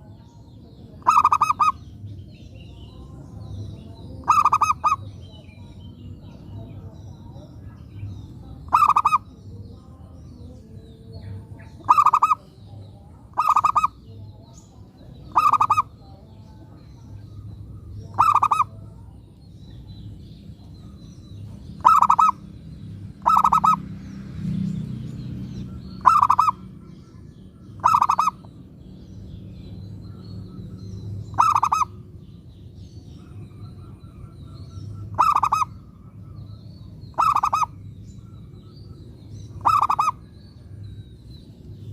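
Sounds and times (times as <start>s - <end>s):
low steady rumble: 0.0s - 41.9s
dove cooing: 1.0s - 1.8s, 4.2s - 5.1s, 8.6s - 9.3s, 11.7s - 12.5s, 13.2s - 14.1s, 15.3s - 15.9s, 18.1s - 18.9s, 21.8s - 22.4s, 23.2s - 23.8s, 26.0s - 26.8s, 27.8s - 28.5s, 31.3s - 32.0s, 33.2s - 36.5s, 37.1s - 38.4s, 39.5s - 40.3s.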